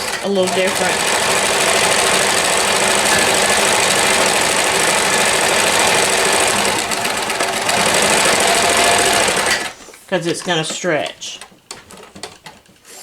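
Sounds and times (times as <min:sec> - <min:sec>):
sewing machine running: 0:00.0 - 0:09.8.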